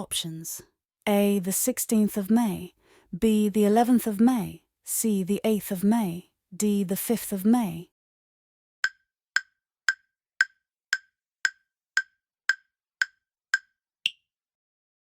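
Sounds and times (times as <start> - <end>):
countdown timer ticks: 8.8 - 14.3.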